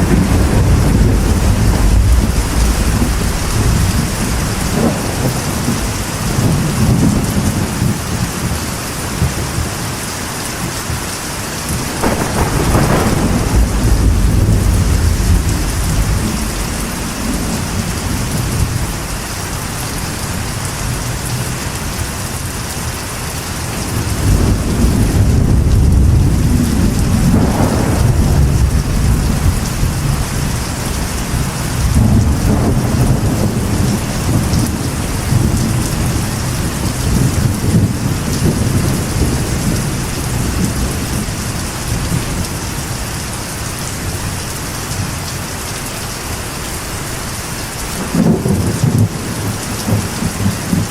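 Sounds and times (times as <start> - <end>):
deep thunder rumbling: 0.0 - 9.8, 11.0 - 22.8, 23.6 - 43.1, 47.9 - 50.9
rain drumming on metal roof: 0.0 - 50.9.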